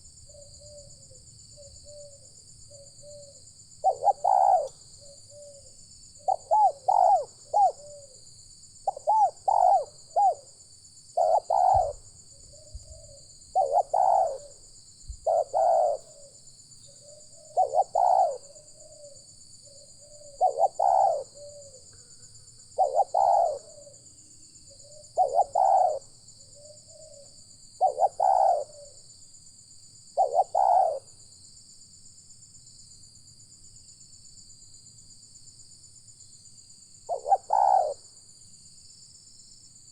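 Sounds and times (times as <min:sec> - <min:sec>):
dove cooing: 0:00.0 - 0:08.2, 0:08.8 - 0:10.5, 0:11.2 - 0:24.0, 0:24.7 - 0:29.0, 0:30.2 - 0:31.1, 0:37.1 - 0:38.1.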